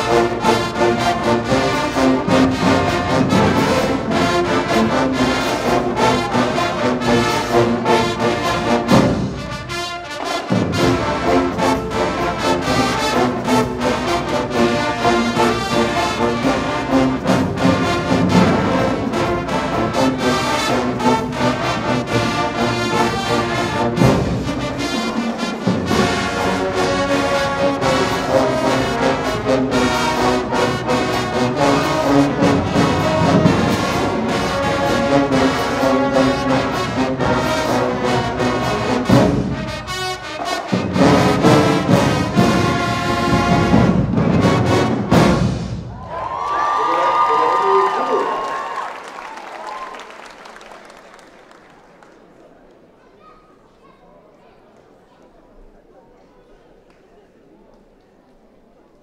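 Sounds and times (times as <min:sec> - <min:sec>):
brass melody: 0:00.0 - 0:45.9
drumline percussion: 0:00.0 - 0:46.8.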